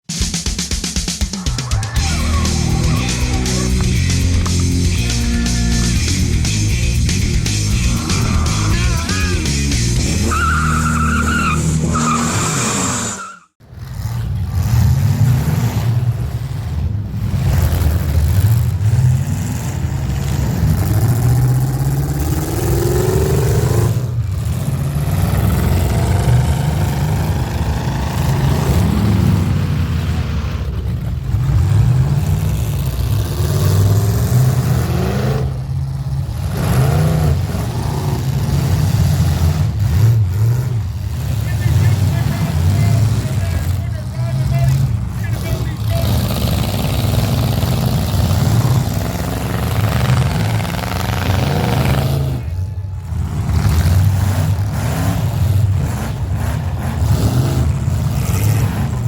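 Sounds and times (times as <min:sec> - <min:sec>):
rock music: 0:00.0 - 0:12.2
tyres skidding: 0:00.4 - 0:59.0
engines revving: 0:01.2 - 0:59.0.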